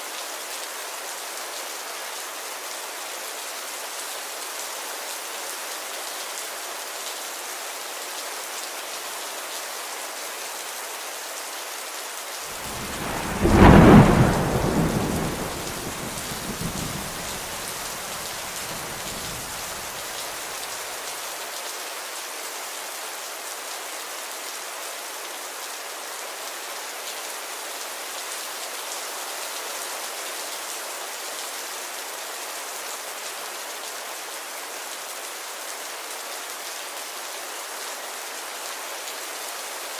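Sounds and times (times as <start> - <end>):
rain hiss: 11.6 - 24.7
thunder clap: 12.6 - 20.0.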